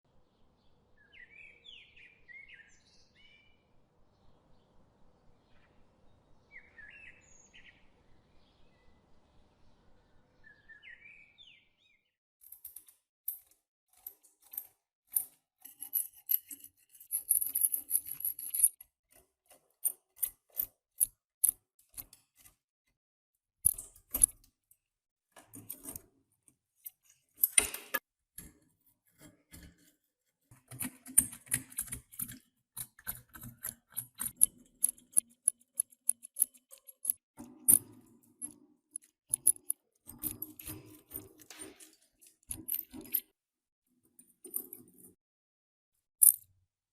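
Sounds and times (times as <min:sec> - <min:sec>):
bird chirp: 0:00.2 - 0:12.2
rusty metal parts clinking and rattling: 0:12.4 - 0:22.5, 0:23.6 - 0:24.4, 0:25.4 - 0:26.0, 0:26.8 - 0:28.5, 0:30.7 - 0:43.3, 0:44.2 - 0:45.1, 0:46.2 - 0:46.5.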